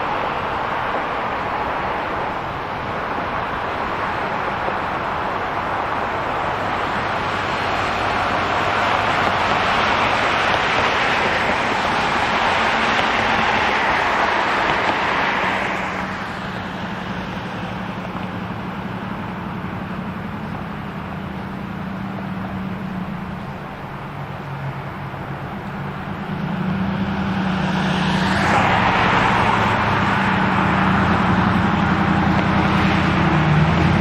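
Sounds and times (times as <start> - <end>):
vehicle passing: 0.0 - 34.0.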